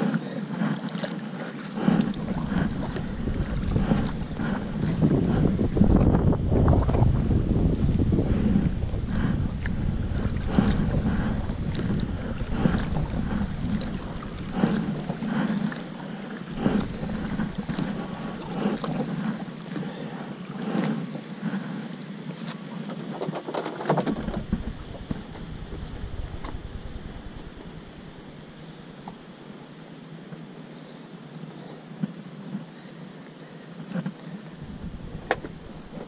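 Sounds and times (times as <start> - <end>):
paddle splashing water: 0.0 - 29.6, 33.9 - 36.0
wind buffeting microphone: 1.8 - 19.5, 23.9 - 29.1, 34.6 - 36.0.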